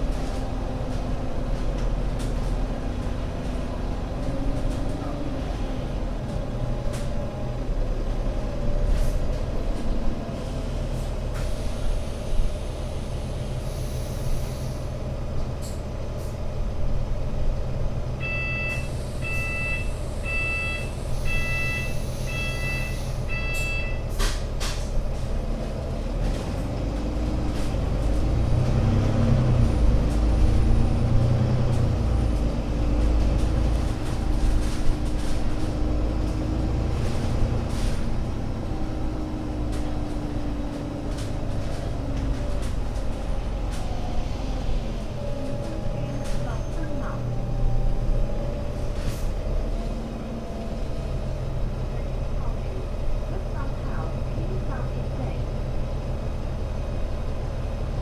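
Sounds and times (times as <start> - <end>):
bus diesel engine idling: 0.0 - 58.0
air hiss from bus: 11.4 - 15.0, 20.9 - 23.2.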